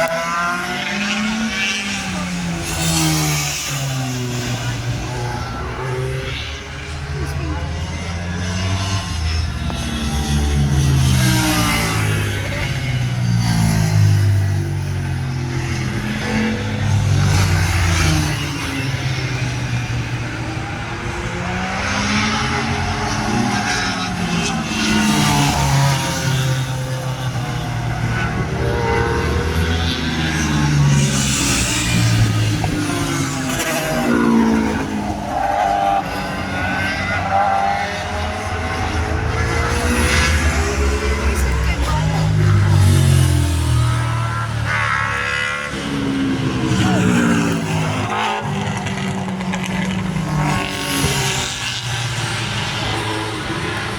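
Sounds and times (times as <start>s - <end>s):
engines revving: 0.0s - 53.9s
motorcycles passing: 0.0s - 53.9s.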